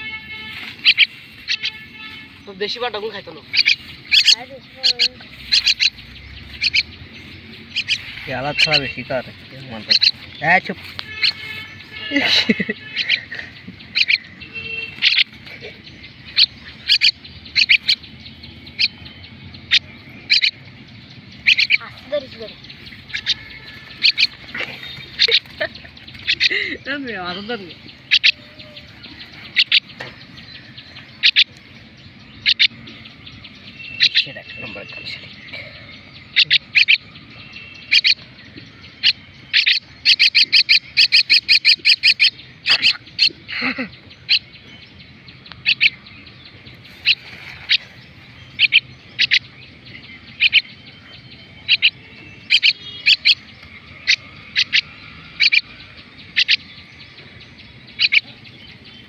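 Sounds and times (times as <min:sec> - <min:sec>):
bird chick shrill calls: 0:00.0 - 0:02.4, 0:03.5 - 0:06.9, 0:07.6 - 0:09.2, 0:09.9 - 0:13.3, 0:13.9 - 0:15.4, 0:16.3 - 0:18.0, 0:21.4 - 0:26.6, 0:27.9 - 0:29.9, 0:51.6 - 0:55.7
bird chick chirping: 0:00.0 - 0:59.0.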